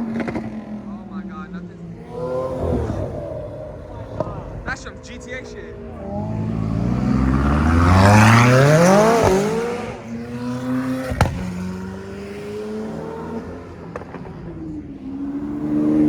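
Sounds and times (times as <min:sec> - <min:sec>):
car engine revving: 0:00.0 - 0:16.0
sharp crack: 0:11.0 - 0:11.6.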